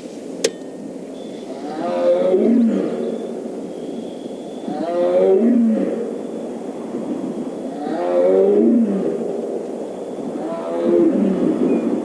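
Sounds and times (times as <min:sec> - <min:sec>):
tiger roaring: 0:01.5 - 0:03.3, 0:04.6 - 0:06.1, 0:07.7 - 0:09.4, 0:10.3 - 0:11.6.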